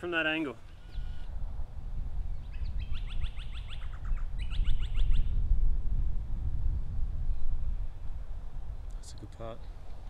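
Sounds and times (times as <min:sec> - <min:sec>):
wind rumble on microphone: 0:00.7 - 0:10.0
songbird singing high notes: 0:02.4 - 0:05.4.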